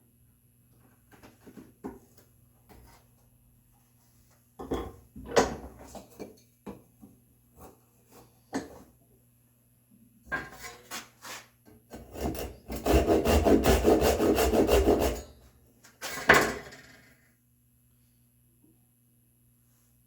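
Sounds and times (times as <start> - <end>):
hand tool scraping wood: 10.5 - 15.3.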